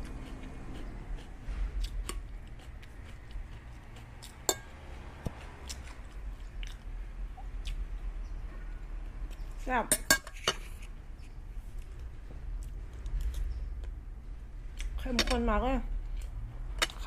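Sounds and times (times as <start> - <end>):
person chewing food: 0.0 - 8.1, 10.7 - 14.0, 16.1 - 17.0.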